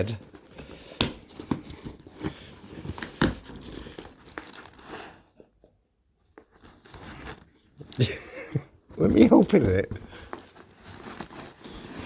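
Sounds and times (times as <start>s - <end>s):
packaging crinkling: 0.0s - 5.2s.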